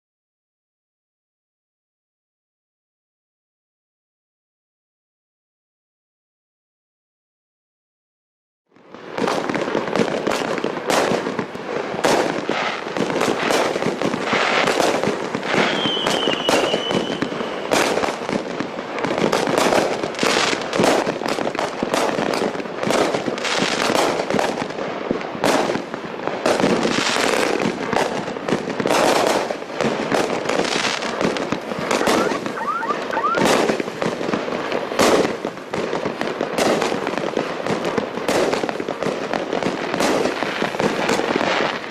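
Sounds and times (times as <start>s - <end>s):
fireworks shots and aerial bursts: 8.7s - 41.9s.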